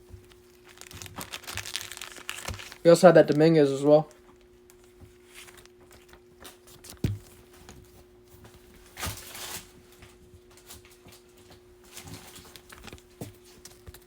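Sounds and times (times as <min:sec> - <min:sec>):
card packs rustling: 0:00.0 - 0:07.9, 0:11.9 - 0:14.0
faint steady hum: 0:00.0 - 0:14.0
cards thumping on table: 0:06.9 - 0:07.3.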